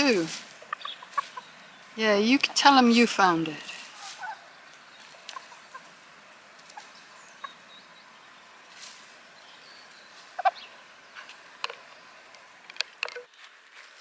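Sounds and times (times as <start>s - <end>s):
chickens clucking: 0.0s - 2.6s.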